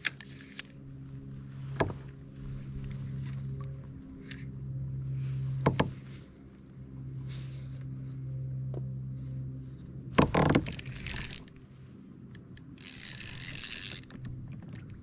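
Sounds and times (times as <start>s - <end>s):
fishing reel clicking and whirring: 10.4s - 11.6s, 12.3s - 15.0s.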